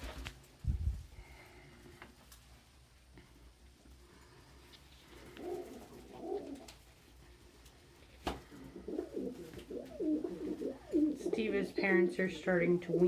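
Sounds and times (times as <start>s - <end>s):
pigeon cooing: 5.0s - 6.9s, 8.1s - 13.0s.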